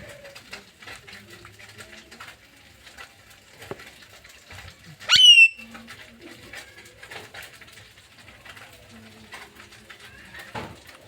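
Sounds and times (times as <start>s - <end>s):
parrot squawk: 5.0s - 5.7s
many birds chirping: 5.0s - 7.5s.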